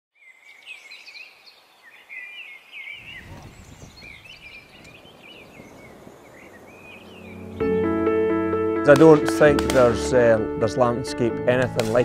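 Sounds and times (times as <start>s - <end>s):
small birds chirping and warbling: 0.1s - 8.0s
low rumbling noise: 3.0s - 7.8s.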